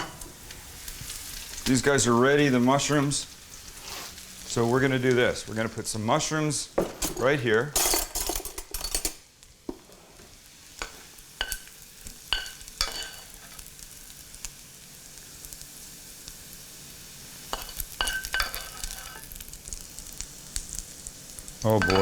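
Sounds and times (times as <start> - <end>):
food sizzling in a frying pan: 0.0 - 22.0
metal utensil clinking on a pan: 6.8 - 9.2, 10.8 - 13.7, 17.5 - 19.3, 21.7 - 22.0.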